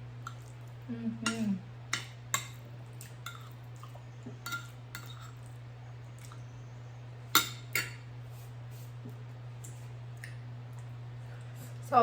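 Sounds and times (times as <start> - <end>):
low electrical hum: 0.0 - 12.0
utensils clinking against bowl: 3.2 - 3.6, 4.4 - 5.5.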